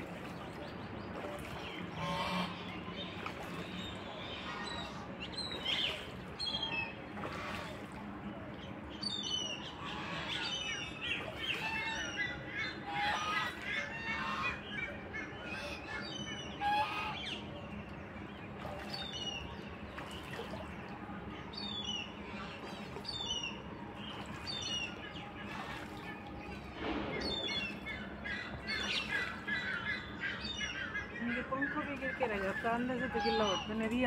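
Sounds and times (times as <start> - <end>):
birds chirping: 0.0 - 34.0
low squawking bird calls: 9.1 - 17.9, 21.6 - 33.9.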